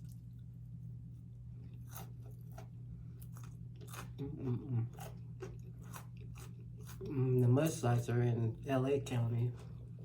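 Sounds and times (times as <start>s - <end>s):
crunchy food chewing: 0.0s - 7.8s
steady low hum: 0.0s - 10.0s.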